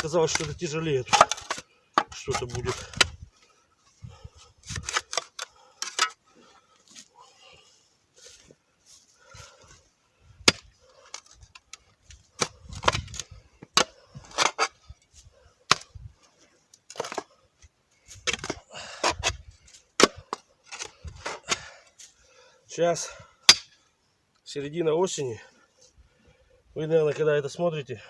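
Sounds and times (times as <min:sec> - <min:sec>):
scraping of earth: 0:00.0 - 0:07.4
digging tool striking iron: 0:10.5 - 0:10.7, 0:23.5 - 0:23.8.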